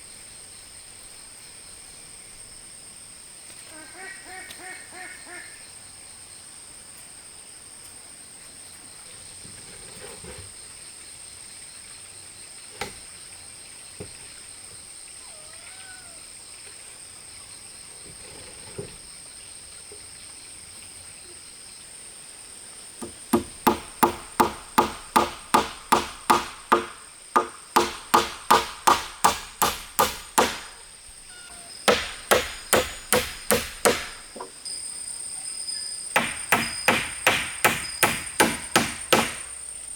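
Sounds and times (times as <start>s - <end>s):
high insect drone: 0.0s - 18.2s, 18.8s - 39.9s
single knocks: 23.0s - 30.8s, 31.9s - 34.6s, 36.2s - 39.6s
hammer driving nails into wood: 23.0s - 30.9s, 31.8s - 34.5s, 36.2s - 39.6s.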